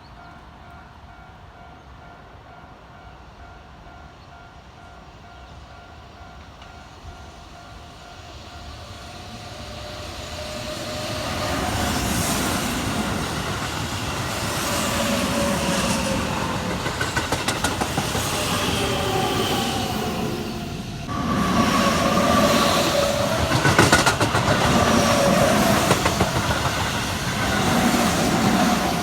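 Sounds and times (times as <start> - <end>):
electric train passing: 0.1 - 29.0
train wheels clattering over rail joints: 12.2 - 19.0, 22.1 - 29.0.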